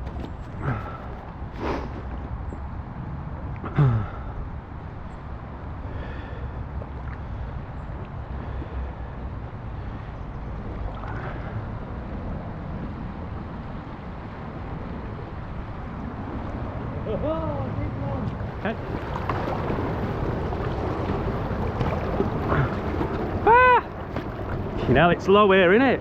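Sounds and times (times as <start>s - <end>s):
water around a kayak: 0.0s - 26.0s
wind rumble on microphone: 0.0s - 26.0s.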